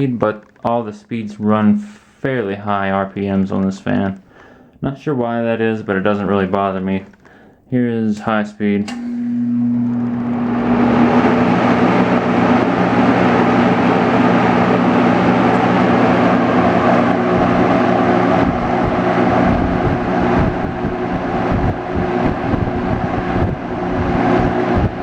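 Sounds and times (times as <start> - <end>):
fan motor hum: 7.6 - 25.0
fan blowing air: 8.2 - 25.0
uneven low rumbling: 9.0 - 25.0.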